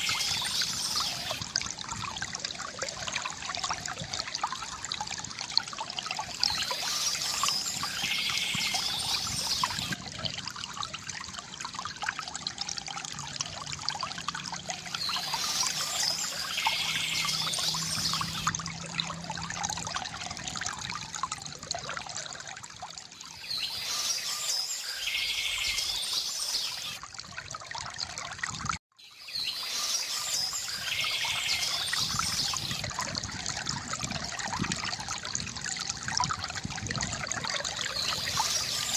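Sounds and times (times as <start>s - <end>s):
water trickling from fountain spout: 0.0s - 38.9s
birds chirping: 15.0s - 18.5s.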